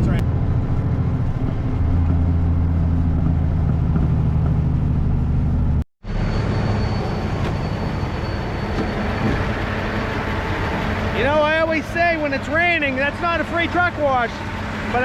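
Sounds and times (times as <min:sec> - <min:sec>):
road noise: 0:00.0 - 0:15.0
truck diesel engine droning: 0:00.0 - 0:15.0.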